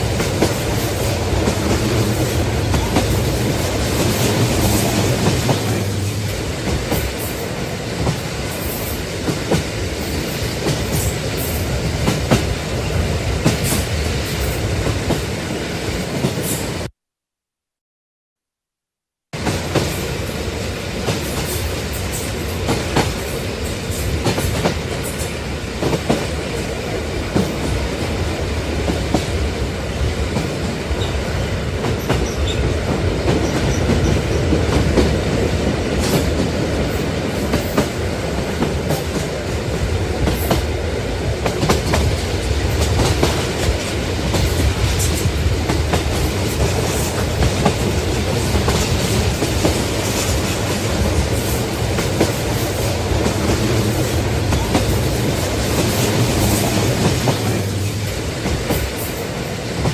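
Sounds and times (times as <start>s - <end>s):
passenger train rumbling: 0.0s - 16.9s, 19.4s - 59.9s.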